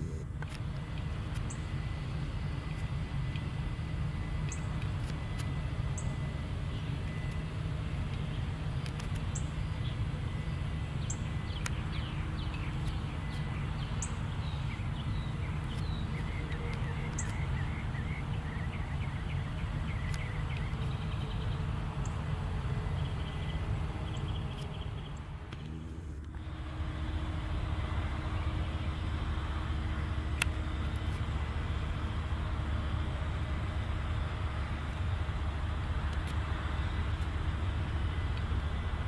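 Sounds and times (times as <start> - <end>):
helicopter rumble: 0.0 - 39.0
bird chirping: 9.2 - 25.3.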